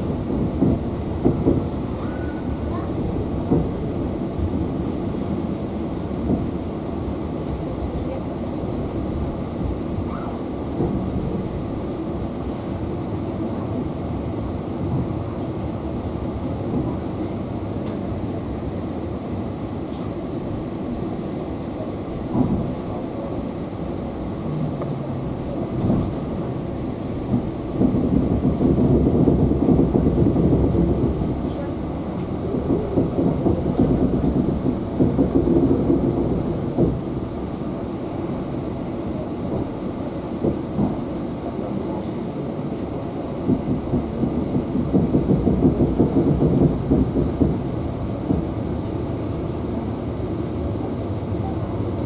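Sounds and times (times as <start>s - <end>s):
knocks of train wheels: 0.0s - 3.8s, 24.5s - 37.4s, 42.7s - 49.0s
train wheels rumbling on rails: 0.0s - 52.0s.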